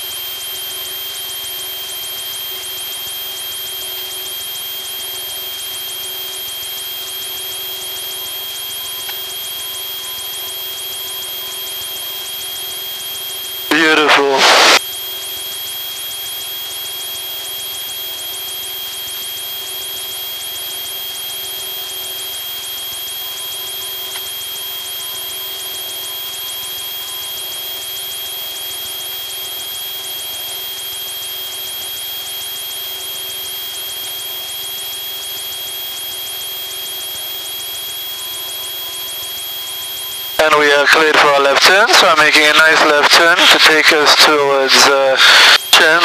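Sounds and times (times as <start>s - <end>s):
propeller plane engine drone: 0.0s - 46.0s
steady high whine: 0.0s - 46.0s.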